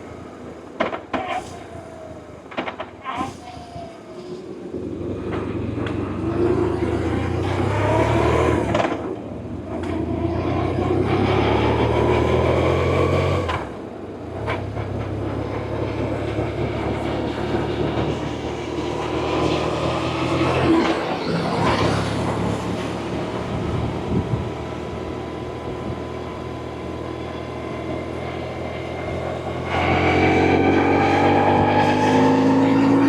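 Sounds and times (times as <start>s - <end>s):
motorcycle engine accelerating: 14.5s - 33.0s
wind rush: 15.3s - 26.2s.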